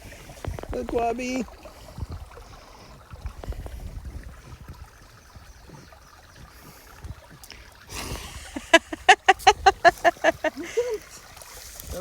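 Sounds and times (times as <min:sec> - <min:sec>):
creek water sloshing: 0:00.0 - 0:12.0
microphone handling knocks: 0:00.4 - 0:01.0.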